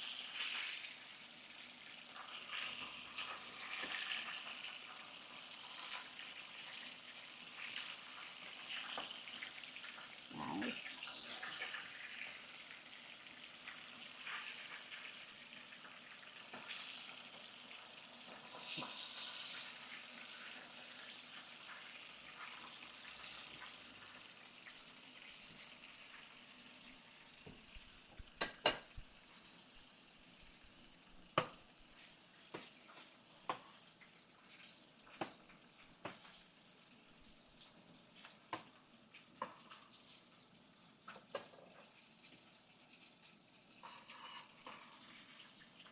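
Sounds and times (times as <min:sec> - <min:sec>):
fish sizzling in hot oil: 0:00.0 - 0:45.9.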